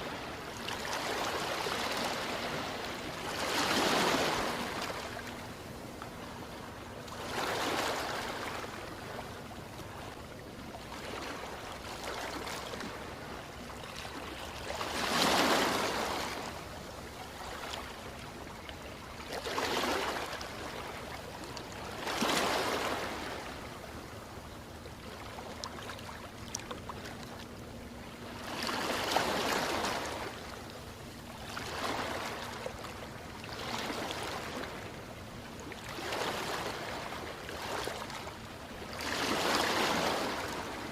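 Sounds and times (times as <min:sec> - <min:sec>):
surf washing: 0:00.0 - 0:05.7, 0:10.8 - 0:18.6, 0:35.8 - 0:40.9
ocean waves breaking: 0:00.0 - 0:23.9, 0:26.9 - 0:40.9.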